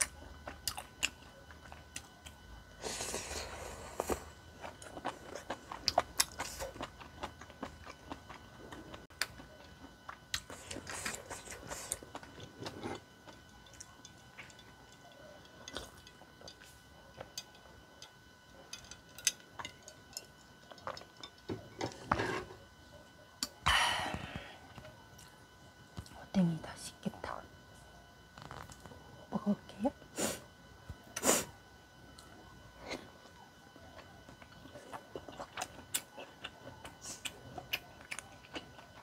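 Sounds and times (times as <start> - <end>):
woman chewing: 0.0 - 21.7, 32.2 - 39.0.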